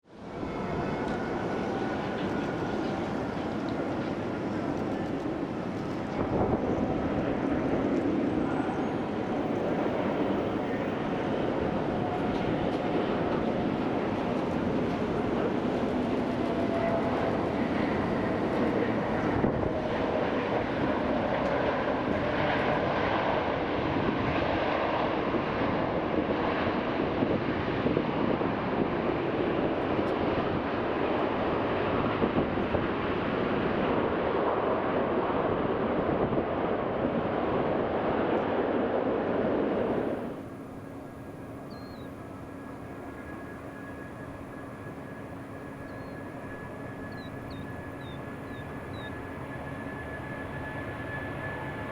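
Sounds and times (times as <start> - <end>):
jet engine noise: 0.0 - 51.9.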